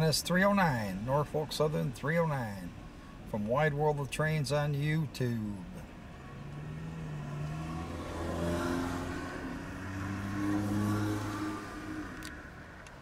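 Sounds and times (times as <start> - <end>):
car engines accelerating: 5.8 - 13.0.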